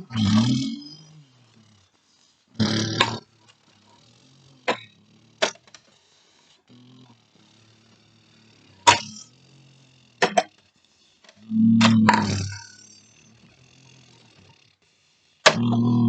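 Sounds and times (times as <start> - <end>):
sharp clicks or knocks: 11.7 - 12.6.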